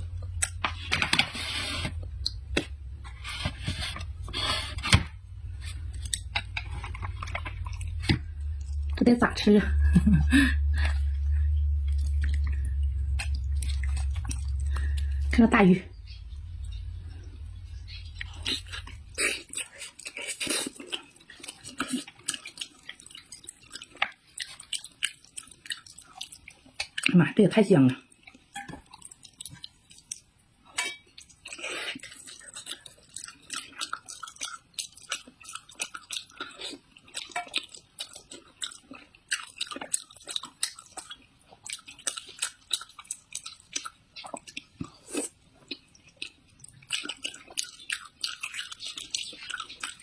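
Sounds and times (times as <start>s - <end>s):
person chewing food: 0.0s - 9.0s, 9.7s - 27.1s, 28.1s - 50.0s
low hum: 0.0s - 19.5s
rasping scrapes: 3.0s - 5.9s.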